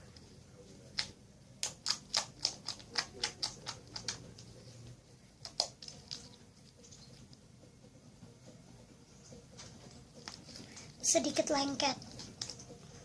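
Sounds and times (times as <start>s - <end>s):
slime clicking and popping: 1.0s - 4.2s, 5.4s - 6.3s.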